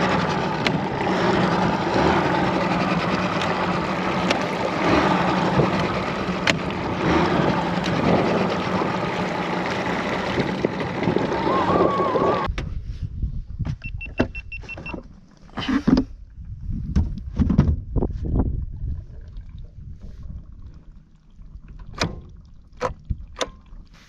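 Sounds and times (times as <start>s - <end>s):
outboard motor humming: 0.0s - 12.5s, 19.2s - 24.0s
wind noise on microphone: 10.2s - 20.9s, 21.8s - 24.0s.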